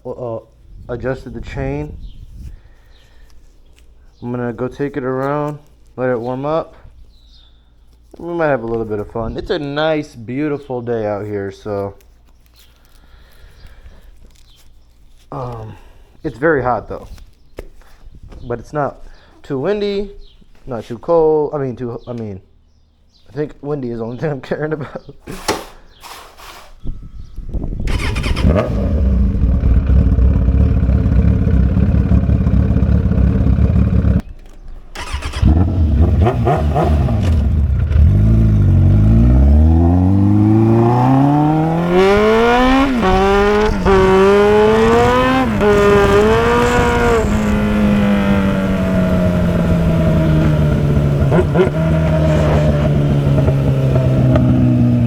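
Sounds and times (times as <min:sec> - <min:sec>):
motorcycle engine accelerating: 0:27.8 - 0:34.3, 0:35.0 - 0:55.0.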